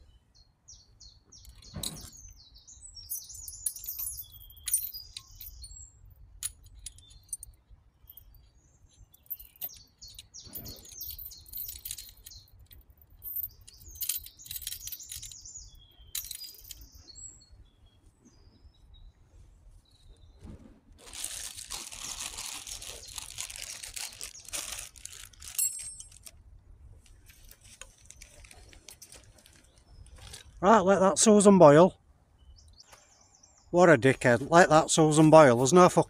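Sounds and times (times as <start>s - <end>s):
small birds chirping: 0.0s - 26.3s, 27.0s - 36.0s
light clinks and rattles: 1.4s - 17.3s, 21.1s - 26.4s, 27.0s - 30.6s.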